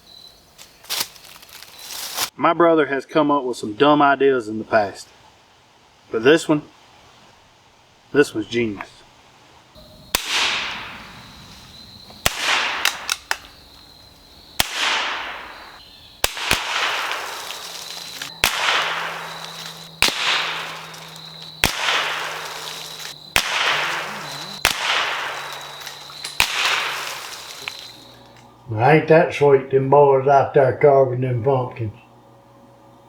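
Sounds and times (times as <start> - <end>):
rifle shots: 9.8 - 13.7, 14.6 - 28.3.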